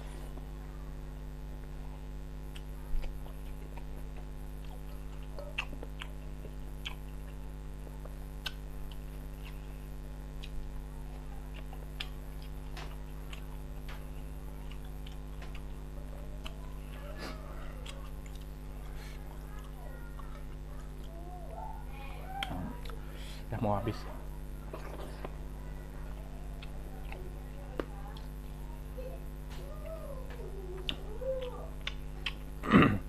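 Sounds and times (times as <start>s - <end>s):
steady low hum: 0.0s - 33.0s
person chewing food: 2.0s - 23.2s, 24.6s - 32.6s
wet mouth clicks and smacks: 30.8s - 32.5s.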